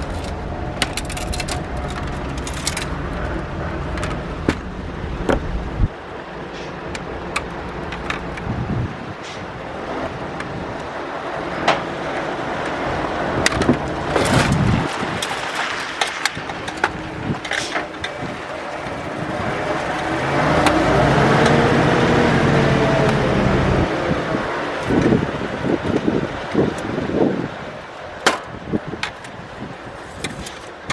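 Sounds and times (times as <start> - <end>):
plastic and metal parts clicking: 0.0 - 3.2, 6.9 - 8.5, 28.2 - 30.9
wavering hum: 0.0 - 9.2, 12.4 - 30.3.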